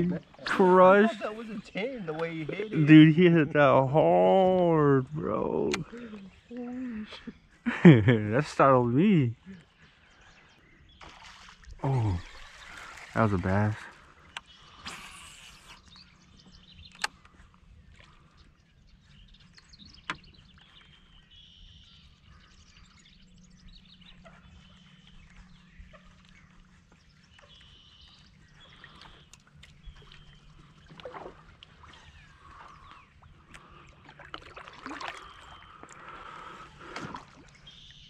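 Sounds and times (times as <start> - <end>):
low steady hum: 0.0 - 38.0
faint bird chirps: 14.0 - 34.2, 35.0 - 38.0
sharp clicks: 16.9 - 17.3.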